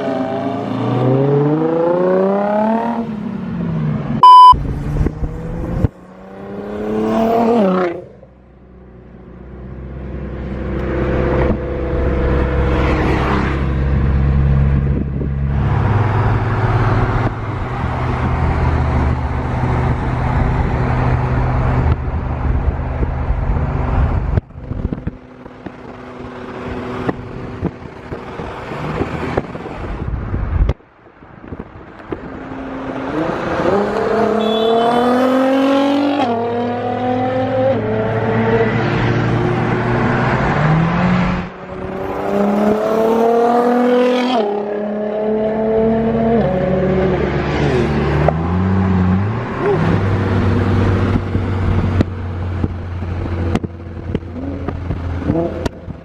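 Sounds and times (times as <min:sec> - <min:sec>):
car engines accelerating hard: 0:00.0 - 0:30.7, 0:31.5 - 0:56.0.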